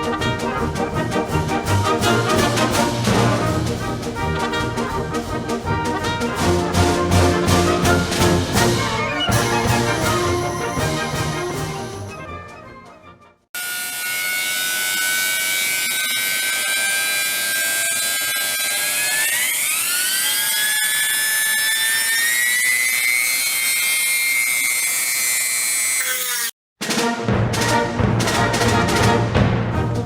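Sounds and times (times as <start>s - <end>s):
rotary tool whining on steel: 13.6s - 26.6s.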